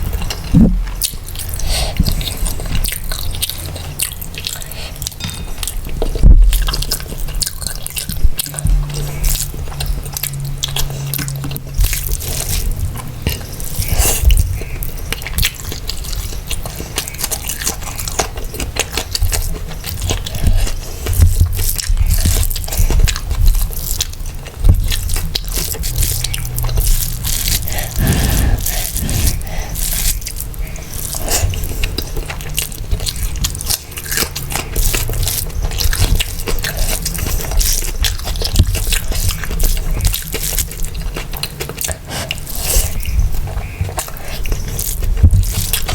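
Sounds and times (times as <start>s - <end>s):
wet chewing mouth sounds: 0.0s - 45.9s
low thuds: 0.5s - 1.2s.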